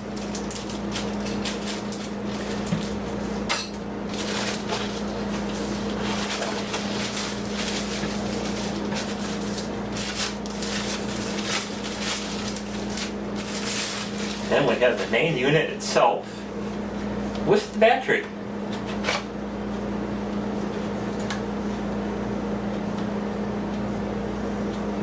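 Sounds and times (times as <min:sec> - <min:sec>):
steady low hum: 0:00.0 - 0:25.0
packaging rustling: 0:00.1 - 0:03.2, 0:04.1 - 0:15.3.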